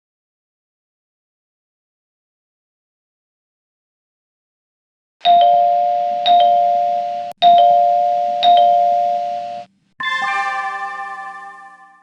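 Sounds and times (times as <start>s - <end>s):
electronic two-tone chime: 5.3s - 12.0s.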